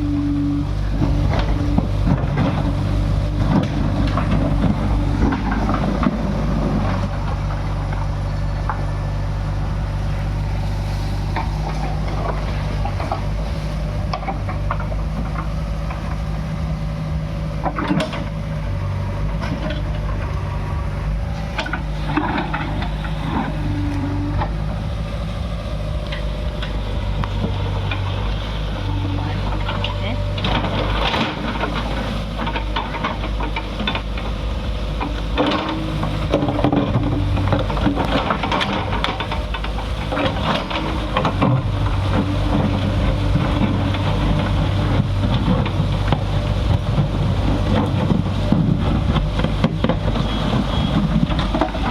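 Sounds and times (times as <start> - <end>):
diesel engine running: 0.0 - 51.9
digging knocks and clatter: 0.9 - 9.1, 11.2 - 51.9.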